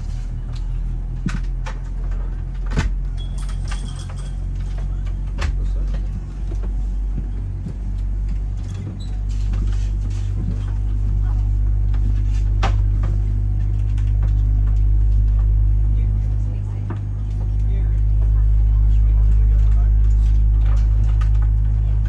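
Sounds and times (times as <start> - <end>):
vehicle interior drone: 0.0 - 22.0
clicks and rattles: 0.1 - 10.9.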